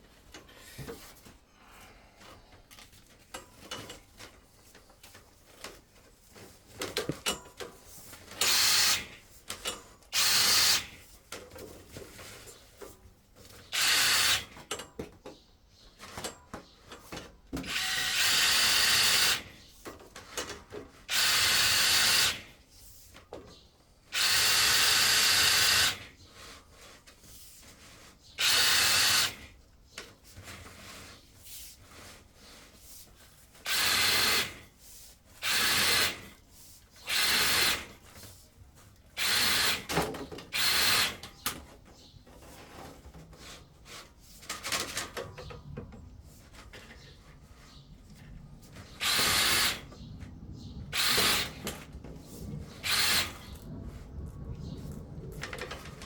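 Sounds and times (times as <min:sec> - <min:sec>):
power drill running: 0:08.4 - 0:09.1, 0:10.1 - 0:10.9, 0:13.7 - 0:14.5, 0:17.6 - 0:19.5, 0:21.1 - 0:22.5, 0:24.1 - 0:26.1, 0:28.4 - 0:29.5, 0:33.6 - 0:34.6, 0:35.4 - 0:36.3, 0:37.0 - 0:37.9, 0:39.2 - 0:39.9, 0:40.5 - 0:41.2, 0:48.9 - 0:49.9, 0:50.9 - 0:51.8, 0:52.8 - 0:53.6.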